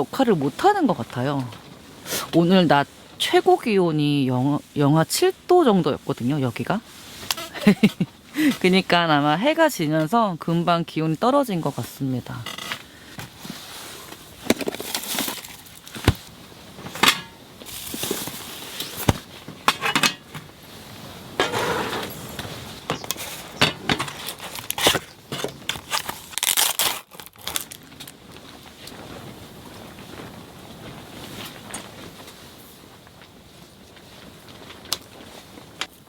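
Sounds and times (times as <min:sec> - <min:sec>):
crinkling and rustling: 0:05.8 - 0:10.2, 0:11.7 - 0:36.0.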